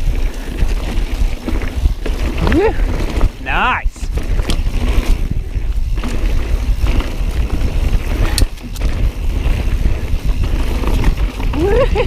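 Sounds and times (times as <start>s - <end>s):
tyre rumble on trail: 0.0s - 12.0s
wind buffeting microphone: 0.0s - 12.0s
bike clicks and knocks: 4.1s - 12.0s.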